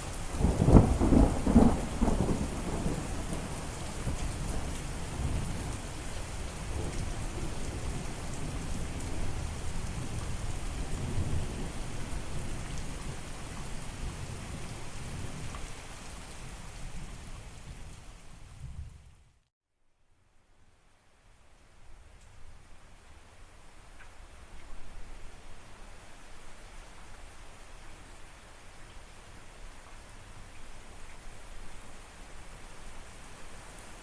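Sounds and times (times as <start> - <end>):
heavy rain: 0.0 - 19.4, 21.0 - 34.0
thunder rumbling: 0.4 - 5.9.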